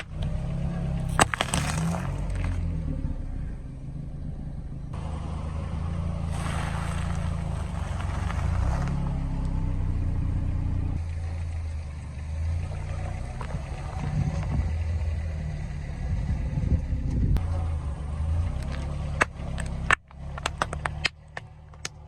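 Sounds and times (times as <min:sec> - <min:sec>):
car engine running: 0:00.0 - 0:22.0
rough hissing noise: 0:06.0 - 0:09.1.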